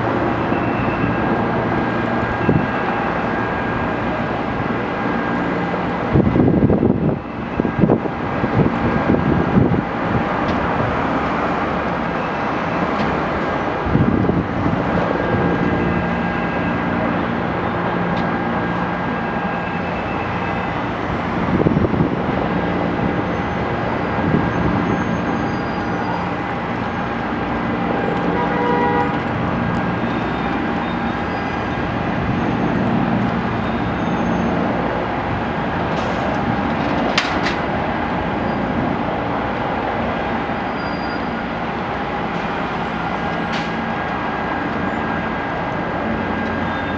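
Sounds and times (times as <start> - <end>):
traffic rumble: 0.0 - 46.9.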